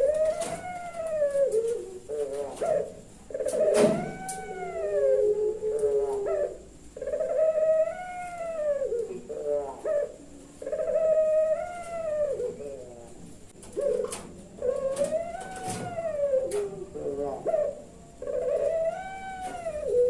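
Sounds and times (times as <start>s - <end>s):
dove cooing: 0.0s - 20.0s.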